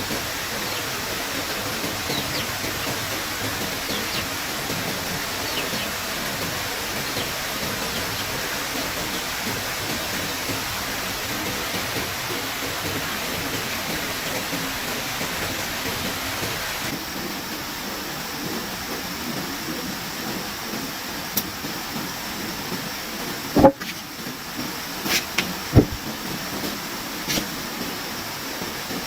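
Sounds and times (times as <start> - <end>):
steady outdoor hiss: 0.0 - 29.0
sharp knocks: 23.6 - 24.0, 25.7 - 26.0.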